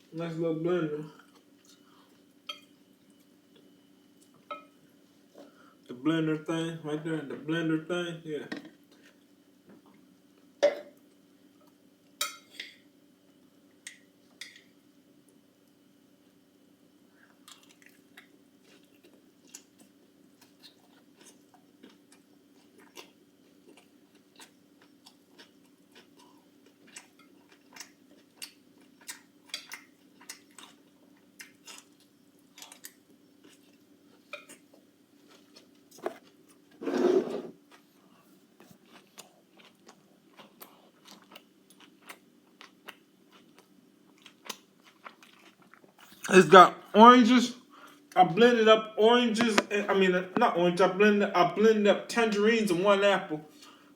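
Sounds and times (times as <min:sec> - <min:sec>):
faint steady hum: 0:00.0 - 0:53.9
person chewing crunchy salad: 0:17.3 - 0:36.7, 0:37.5 - 0:46.3.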